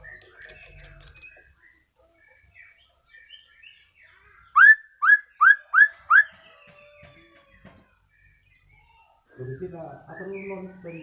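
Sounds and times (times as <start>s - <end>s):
bird twittering: 4.4s - 6.4s
bird whistling rising notes: 4.6s - 6.3s.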